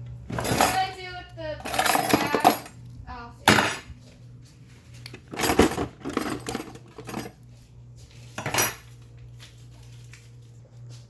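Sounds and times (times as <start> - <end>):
low steady hum: 0.0 - 11.0
utensils and dishes clattering: 0.3 - 2.8, 3.4 - 4.0, 5.0 - 7.4, 8.3 - 9.1.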